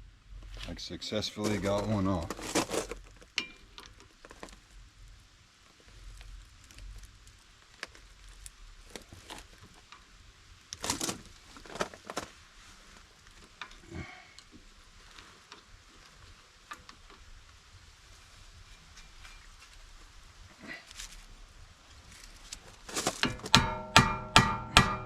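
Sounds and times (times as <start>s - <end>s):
hand tools and metal parts knocking: 23.0s - 25.0s.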